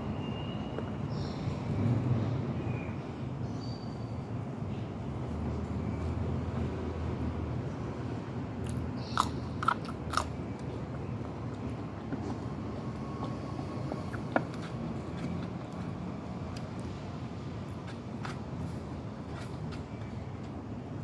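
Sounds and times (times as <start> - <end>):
crunchy bites: 8.6 - 10.8
chewing: 8.6 - 17.0.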